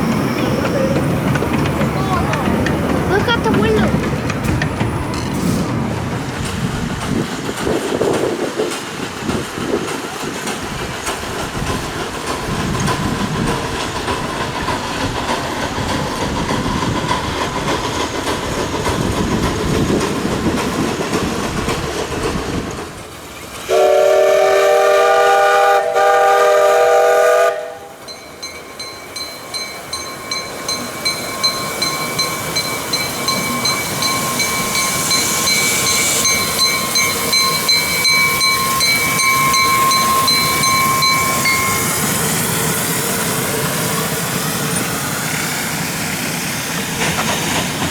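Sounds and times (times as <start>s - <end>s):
miniature train running on track: 0.0s - 47.9s
steam whistle blast: 23.7s - 28.0s.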